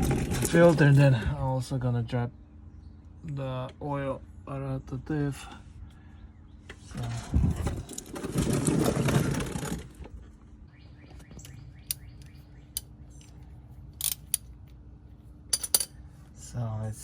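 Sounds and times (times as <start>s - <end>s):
metal tools clinking: 14.0s - 14.5s, 15.5s - 16.0s.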